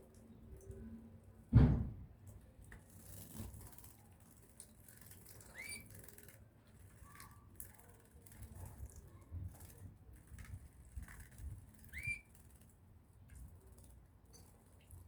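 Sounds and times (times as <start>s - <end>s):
loud thump: 1.5s - 2.0s
pet bird chirp: 11.9s - 12.3s.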